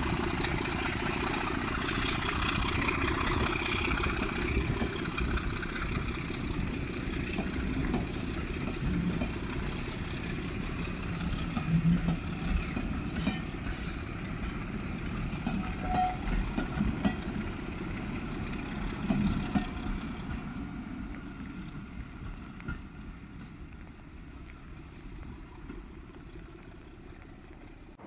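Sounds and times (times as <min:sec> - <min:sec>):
wheels rumbling on rail: 0:00.0 - 0:28.0
brief wheel squeal: 0:15.5 - 0:16.4.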